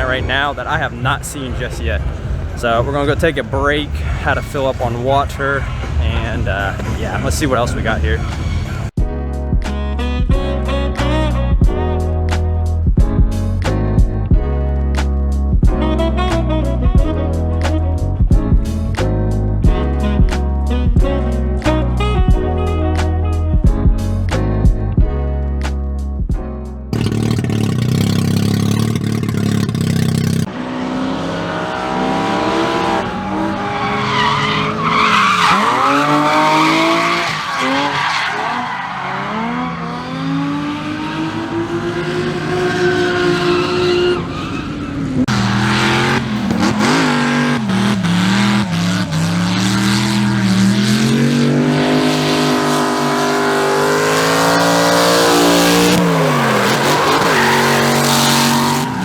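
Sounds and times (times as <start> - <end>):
car engine revving: 0.0 - 9.0, 26.9 - 59.0
tyre squeal: 33.0 - 39.6, 55.9 - 59.0.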